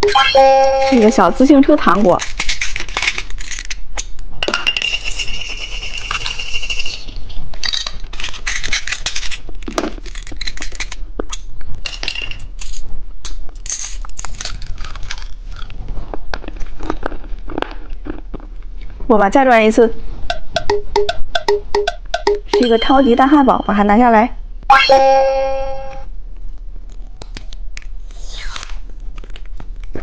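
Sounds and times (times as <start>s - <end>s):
steady high tone: 0.0s - 1.4s, 20.3s - 23.9s, 24.7s - 26.1s.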